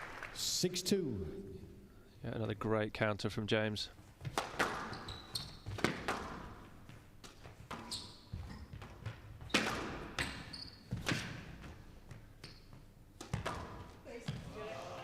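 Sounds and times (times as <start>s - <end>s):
shoes squeaking on court floor: 4.0s - 14.7s
squash ball struck by rackets: 4.2s - 5.0s, 5.7s - 7.9s, 8.8s - 11.7s, 13.2s - 14.0s.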